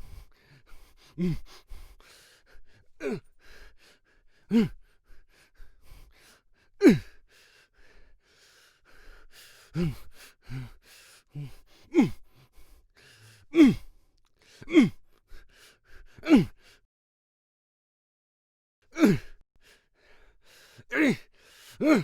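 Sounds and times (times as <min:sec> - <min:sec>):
man grunting and shouting: 0:03.0 - 0:03.3, 0:04.5 - 0:04.8, 0:06.8 - 0:07.1, 0:11.9 - 0:12.2, 0:13.5 - 0:13.9, 0:14.7 - 0:15.0, 0:16.2 - 0:16.6, 0:19.0 - 0:19.4, 0:20.9 - 0:22.0.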